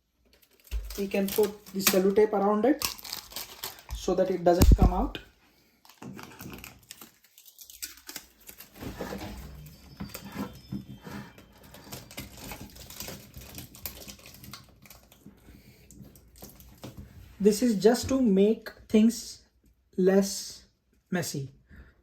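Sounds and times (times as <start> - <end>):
handling plastic parts: 2.8 - 5.1, 5.8 - 15.3.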